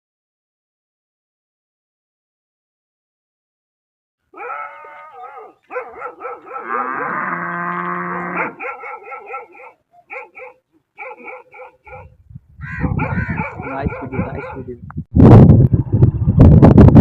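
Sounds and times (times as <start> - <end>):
animal whining calls: 4.4 - 8.6
animal yelping: 4.4 - 12.1, 12.7 - 14.7.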